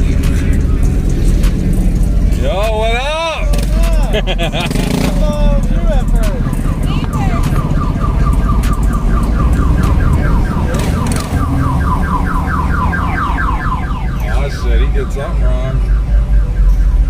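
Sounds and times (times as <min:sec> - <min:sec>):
car alarm rising chirps: 0:05.7 - 0:17.0.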